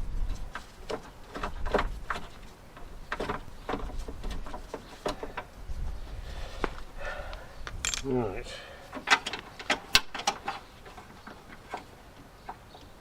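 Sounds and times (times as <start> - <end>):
tools clicking and knocking on door lock: 9.0 - 10.6.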